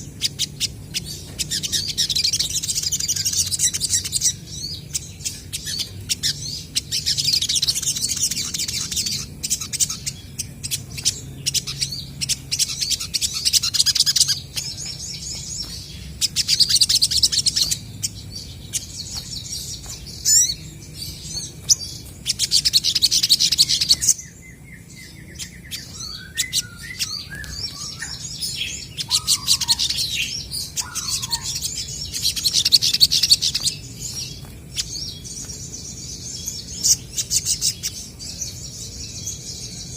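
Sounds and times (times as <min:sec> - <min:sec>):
birds chattering trills: 0:00.0 - 0:39.9
bird whistled notes: 0:21.7 - 0:33.8.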